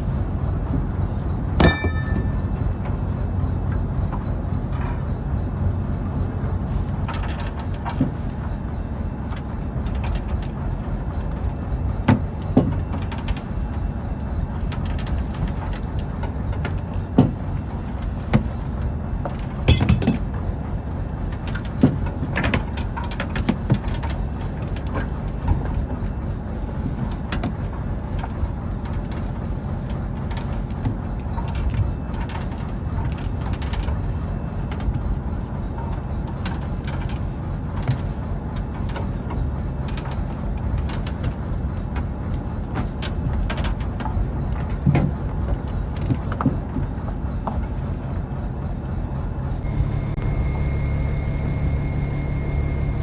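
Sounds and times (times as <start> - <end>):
boat engine rumbling: 0.0 - 53.0
knocks and clatters: 1.6 - 3.0, 19.2 - 20.4.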